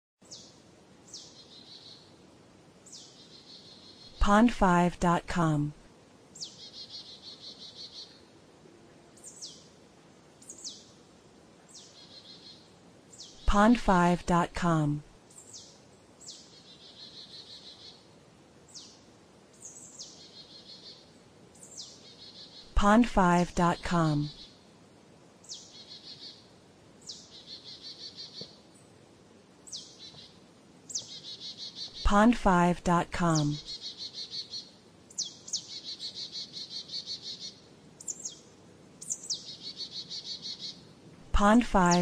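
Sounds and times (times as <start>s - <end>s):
birds singing: 0.2s - 2.2s, 2.8s - 4.6s, 6.4s - 8.3s, 9.2s - 9.7s, 10.4s - 11.0s, 11.7s - 13.9s, 15.3s - 18.1s, 18.7s - 22.8s, 23.4s - 24.6s, 25.4s - 29.0s, 29.6s - 32.5s, 33.2s - 40.9s
faint background hiss: 0.2s - 42.0s
songbird trilling: 6.4s - 8.2s, 15.3s - 18.0s, 25.4s - 28.6s, 29.7s - 32.1s, 33.3s - 40.8s.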